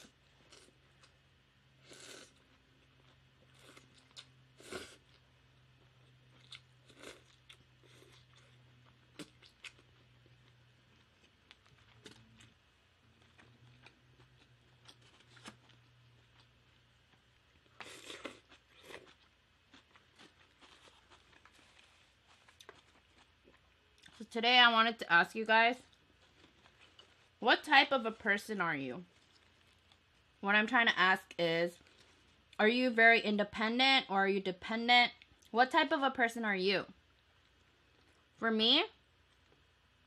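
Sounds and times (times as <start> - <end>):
person chewing food: 0.0 - 1.2, 1.8 - 24.2, 25.9 - 27.4
low steady hum: 0.0 - 40.0.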